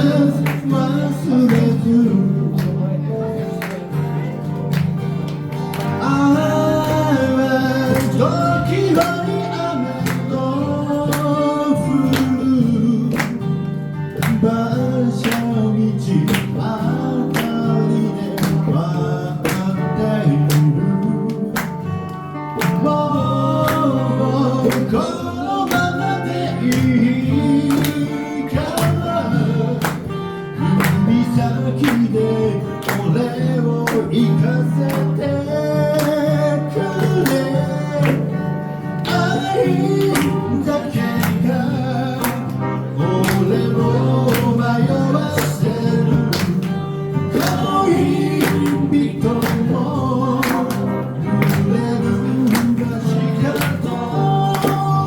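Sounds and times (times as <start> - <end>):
person singing: 0.0 - 3.4, 22.7 - 55.0
guitar over steady beat: 0.0 - 55.0.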